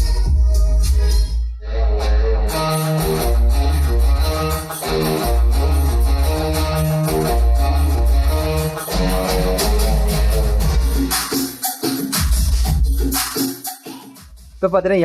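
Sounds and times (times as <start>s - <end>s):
song with guitar and heavy bass: 0.0s - 11.3s.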